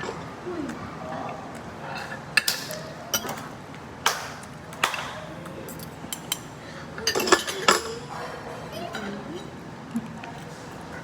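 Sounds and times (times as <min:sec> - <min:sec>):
cutlery clinking on plates: 0:05.7 - 0:08.2.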